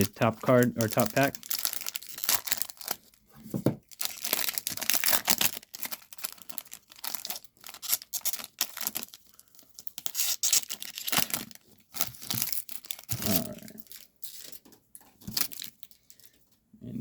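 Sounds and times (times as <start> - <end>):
wrapper tearing and crinkling: 0.0 - 3.2, 3.8 - 16.2.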